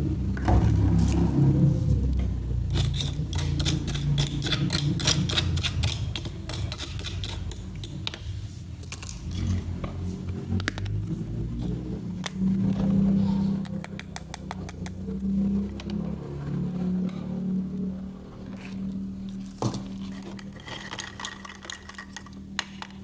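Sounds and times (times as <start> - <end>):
low handling rumble: 0.0 - 3.5
toy pieces clicking and tapping: 13.6 - 15.0.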